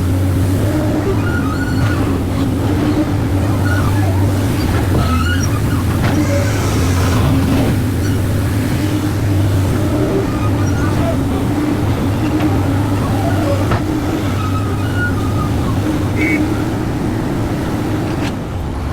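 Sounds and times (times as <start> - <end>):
excavator diesel engine running: 0.0 - 18.9.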